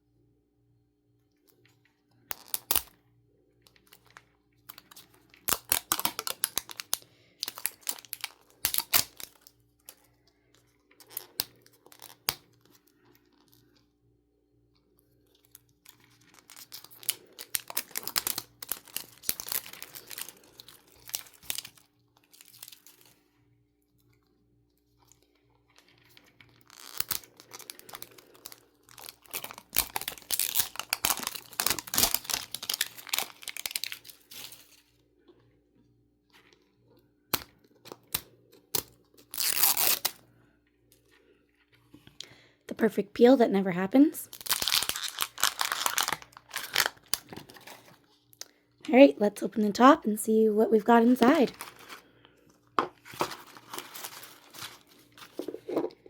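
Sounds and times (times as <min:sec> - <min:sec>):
packaging rustling and crackling: 0:03.7 - 0:10.0, 0:15.3 - 0:23.2, 0:25.0 - 0:35.0, 0:44.3 - 0:48.2, 0:51.0 - 0:52.1, 0:52.9 - 0:56.0.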